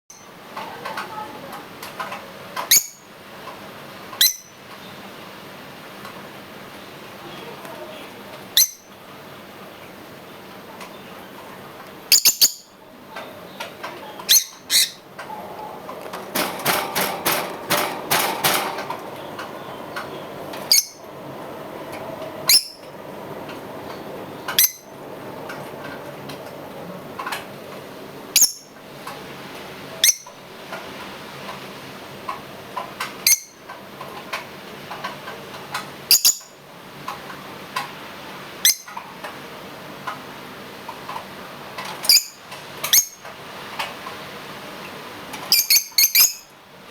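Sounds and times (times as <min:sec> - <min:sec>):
lovebirds chirping: 0:02.7 - 0:03.1, 0:06.7 - 0:08.9, 0:12.1 - 0:15.9, 0:19.0 - 0:21.2, 0:22.5 - 0:22.9, 0:24.3 - 0:24.9, 0:28.4 - 0:28.8, 0:30.0 - 0:30.4, 0:45.5 - 0:46.5.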